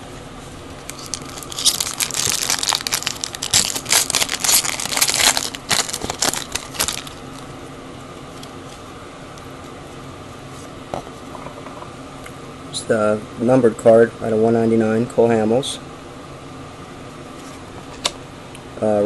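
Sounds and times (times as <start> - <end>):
wrapper crinkling and tearing: 0.8 - 7.4.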